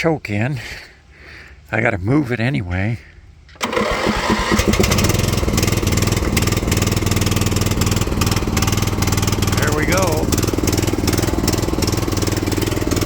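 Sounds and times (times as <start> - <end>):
lawn mower engine starting: 3.5 - 13.0.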